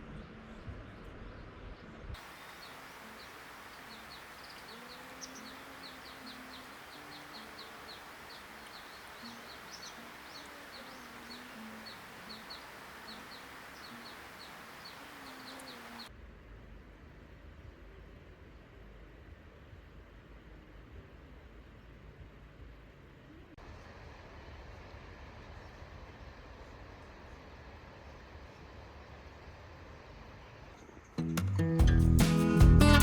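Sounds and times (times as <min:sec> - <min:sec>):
birds chirping: 0:02.2 - 0:16.1
lower wavering bird calls: 0:02.2 - 0:16.1
steady hiss: 0:02.2 - 0:16.1.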